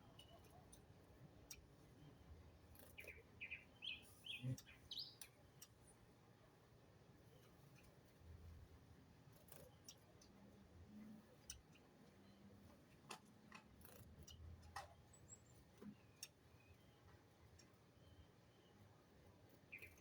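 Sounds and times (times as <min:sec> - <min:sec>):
faint sharp clicks and ticks: 0:00.0 - 0:03.6, 0:04.6 - 0:06.1, 0:07.2 - 0:18.2
high bird chirp: 0:03.0 - 0:05.2.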